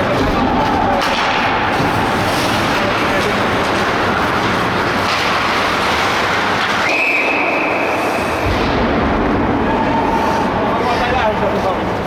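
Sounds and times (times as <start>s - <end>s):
constant loud noise: 0.0s - 12.0s
high whistle blast: 6.8s - 8.4s.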